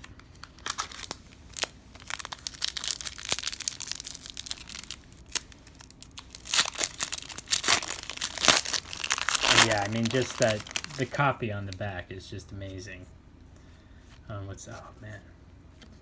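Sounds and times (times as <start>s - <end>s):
wrapper crinkling and tearing: 0.0s - 11.2s
cards being handled: 6.2s - 11.8s.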